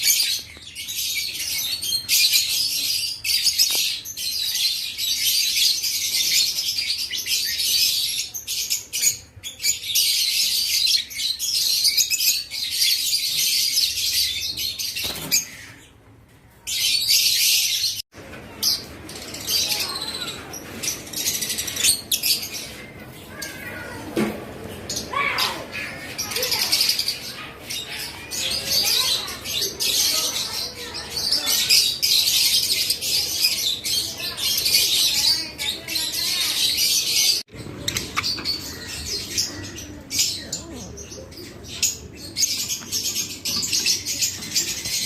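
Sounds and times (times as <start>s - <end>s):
lovebirds chattering shrilly: 18.6s - 45.0s.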